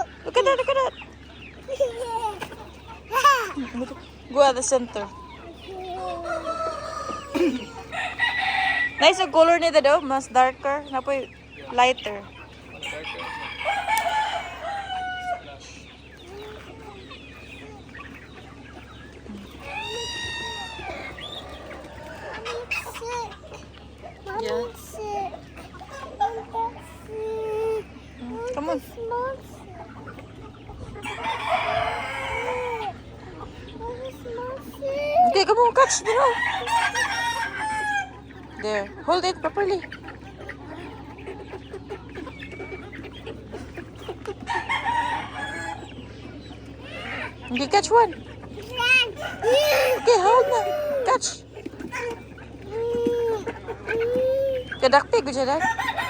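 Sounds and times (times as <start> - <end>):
chickens clucking: 0.0 - 56.0
chicken drawn-out call: 6.0 - 9.5, 12.4 - 15.8, 18.2 - 23.0, 30.1 - 33.3, 35.8 - 38.8, 39.6 - 52.8, 54.9 - 56.0
chicken long drawn-out call: 19.3 - 22.4, 31.0 - 33.0, 35.9 - 38.2, 49.1 - 51.4.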